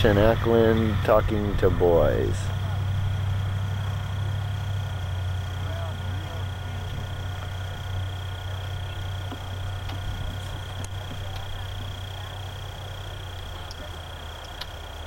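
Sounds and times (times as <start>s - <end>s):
high whine: 0.0s - 15.0s
low hum: 0.0s - 15.0s
faint distant voices: 5.5s - 15.0s.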